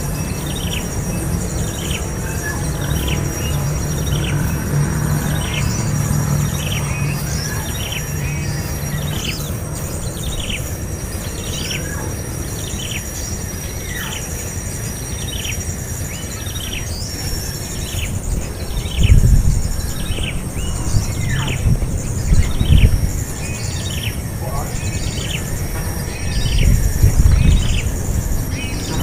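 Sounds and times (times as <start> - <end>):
high insect whine: 0.0 - 29.0
small bird chirping: 0.0 - 29.0
low thumps: 19.0 - 29.0.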